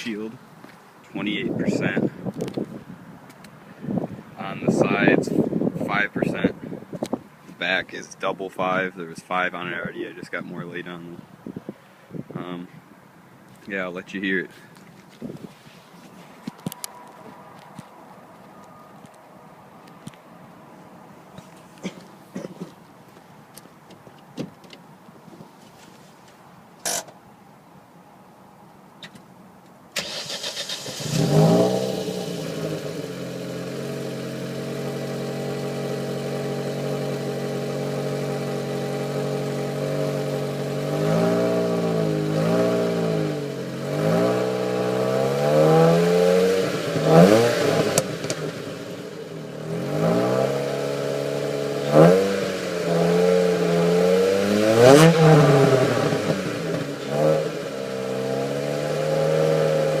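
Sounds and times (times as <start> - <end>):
car engine idling: 30.0 - 45.0
engine revving in throttle blips: 30.0 - 60.0.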